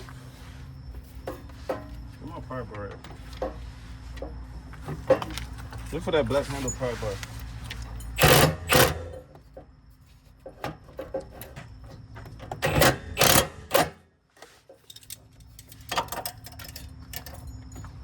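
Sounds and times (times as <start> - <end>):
impact wrench rattling: 8.1 - 9.2, 12.6 - 14.0.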